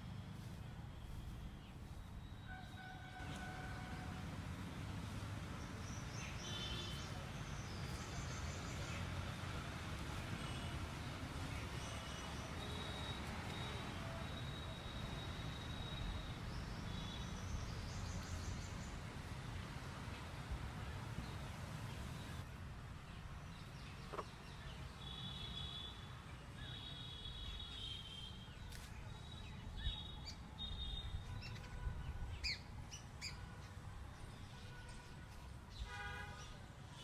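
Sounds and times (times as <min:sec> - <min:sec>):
small birds chirping: 0:05.6 - 0:09.4, 0:10.1 - 0:20.4.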